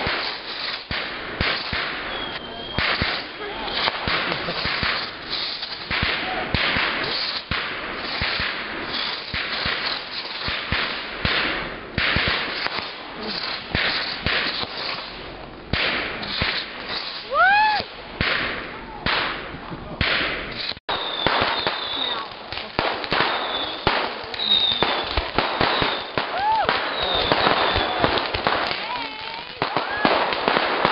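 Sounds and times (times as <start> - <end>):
fireworks crackling and popping: 0.0 - 30.9
whistle-like tone: 2.1 - 3.8.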